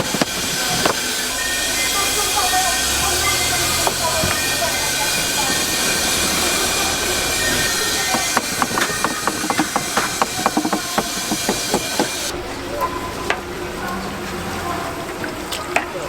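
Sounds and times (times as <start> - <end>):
sharp clicks and knocks: 0.0 - 1.4, 7.6 - 12.3.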